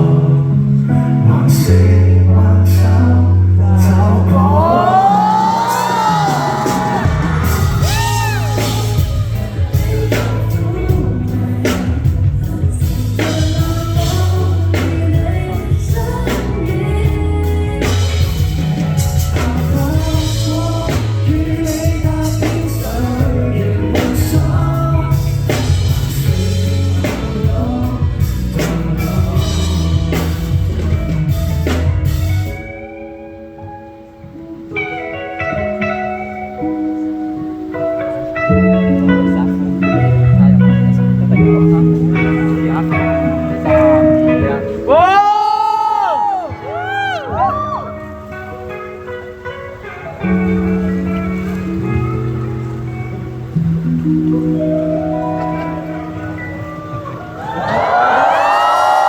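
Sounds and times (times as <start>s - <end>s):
bass line: 0.0s - 33.0s, 38.5s - 59.0s
band music with singer: 0.0s - 59.0s
drum kit beat: 4.9s - 32.8s
guitar notes: 30.4s - 59.0s.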